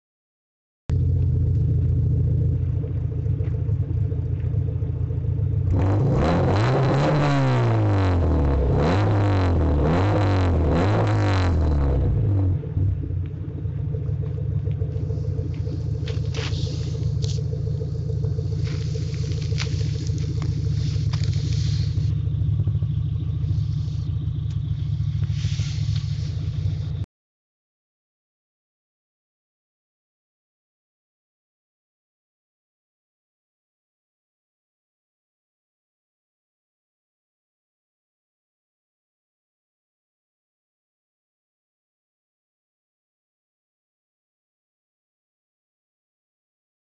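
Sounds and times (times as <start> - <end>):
car engine idling and revving: 0.9 - 27.1
exhaust crackles: 0.9 - 27.1.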